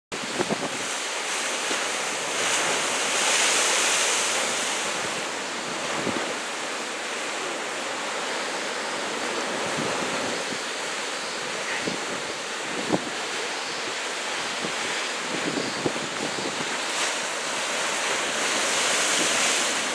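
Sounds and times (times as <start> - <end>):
wind buffeting microphone: 0.2 - 7.6, 11.6 - 13.4, 14.4 - 17.2
ocean surf breaking: 0.2 - 19.9.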